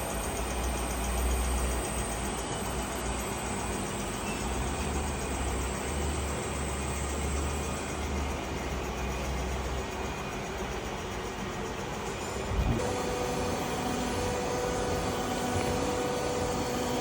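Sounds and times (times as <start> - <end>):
machine running: 0.0 - 17.0
low hum: 12.5 - 13.2.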